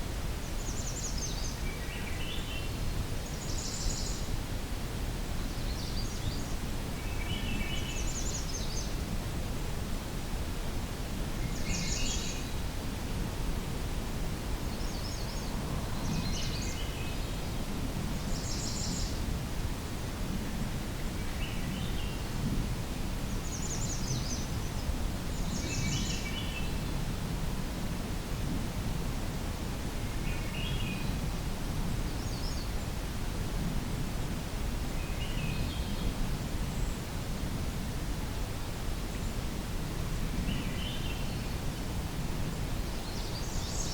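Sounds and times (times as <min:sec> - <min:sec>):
distant thrush song: 0:00.4 - 0:04.3, 0:05.5 - 0:09.0, 0:11.0 - 0:12.7, 0:14.3 - 0:19.3, 0:23.0 - 0:27.0, 0:32.0 - 0:33.0, 0:40.4 - 0:43.9.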